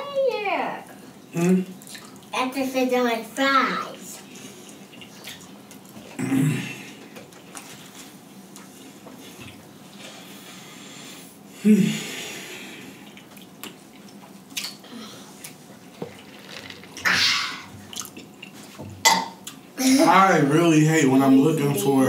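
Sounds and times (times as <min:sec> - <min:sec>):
chewing and wet mouth noises: 0:01.8 - 0:02.3, 0:04.2 - 0:06.2, 0:13.0 - 0:18.8
sipping through a straw: 0:16.0 - 0:17.7.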